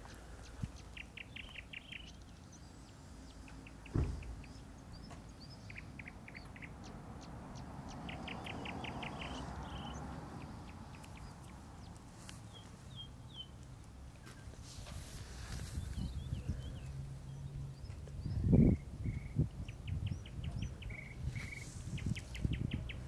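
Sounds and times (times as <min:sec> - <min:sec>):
songbird chirping: 0:00.0 - 0:23.0
low thump: 0:03.8 - 0:04.5.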